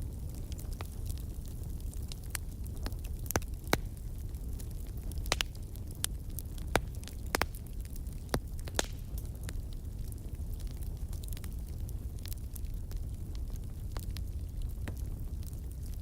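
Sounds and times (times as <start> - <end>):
low rumble of flames: 0.0 - 16.0
wood fire crackling and popping: 0.0 - 16.0.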